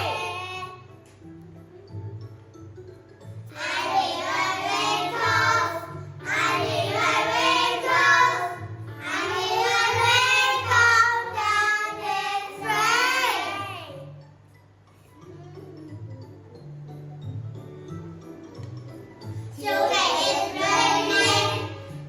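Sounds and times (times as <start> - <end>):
child singing: 0.0 - 0.8, 3.6 - 13.9, 19.6 - 21.8
simple backing music: 0.0 - 22.0.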